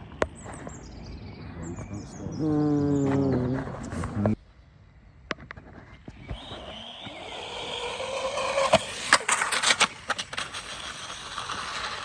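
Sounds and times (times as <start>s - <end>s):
electric motor whine: 6.1s - 12.0s.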